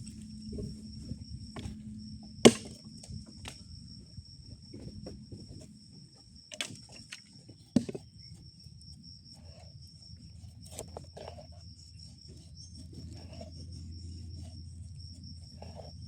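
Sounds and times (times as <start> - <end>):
insects trilling: 0.0 - 16.0
sharp knocks: 2.4 - 3.1.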